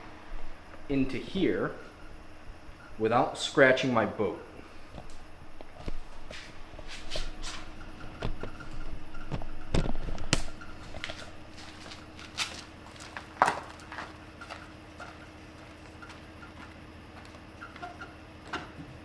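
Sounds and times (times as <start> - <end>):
faint steady hum: 0.0 - 19.0
footsteps: 0.0 - 19.0
knocks and clicks of handling gear: 4.6 - 19.0.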